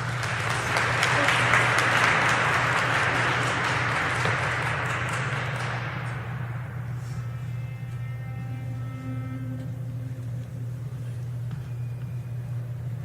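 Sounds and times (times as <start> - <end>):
audience applauding: 0.0 - 7.2
steady low hum: 0.0 - 13.0.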